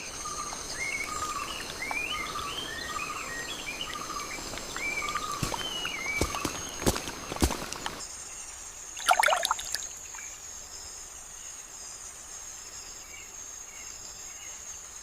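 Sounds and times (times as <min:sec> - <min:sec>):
birds calling: 0:00.3 - 0:08.0.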